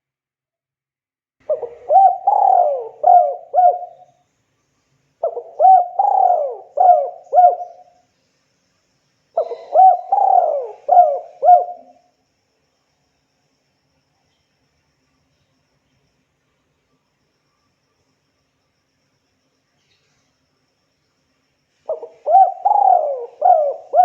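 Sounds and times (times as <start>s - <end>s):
dove cooing: 1.4s - 4.1s, 5.2s - 7.9s, 9.4s - 12.1s, 21.9s - 24.0s.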